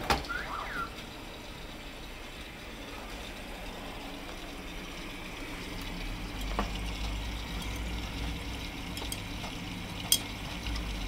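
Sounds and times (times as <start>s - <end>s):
washing machine humming: 0.0s - 11.0s.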